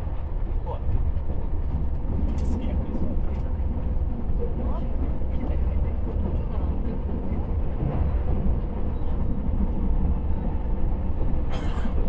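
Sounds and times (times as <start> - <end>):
train rumble inside carriage: 0.0 - 12.0.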